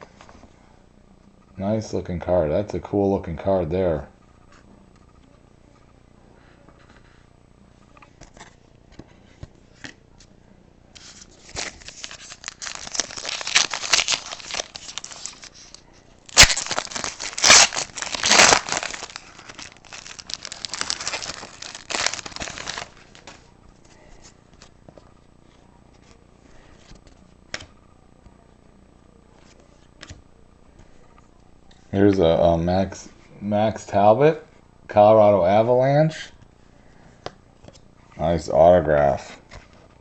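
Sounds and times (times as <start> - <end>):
wrapper being torn and crinkled: 11.2 - 23.4.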